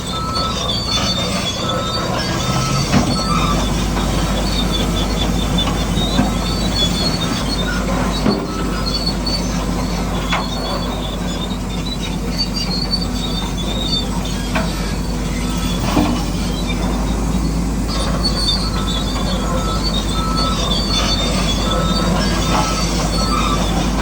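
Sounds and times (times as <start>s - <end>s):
high squeals: 0.0s - 9.8s.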